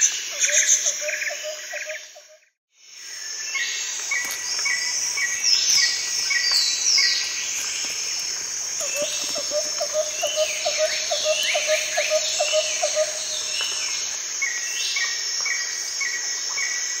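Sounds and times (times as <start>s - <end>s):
high insect drone: 2.8s - 17.0s
bird calls: 3.6s - 14.1s.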